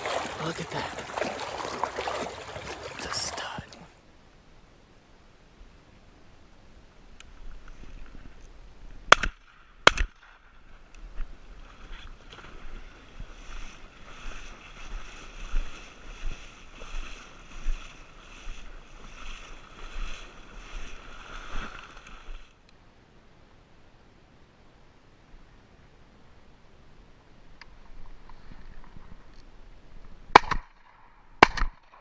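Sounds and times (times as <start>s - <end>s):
rhythmic splashing in water: 0.0s - 3.9s, 11.7s - 22.5s.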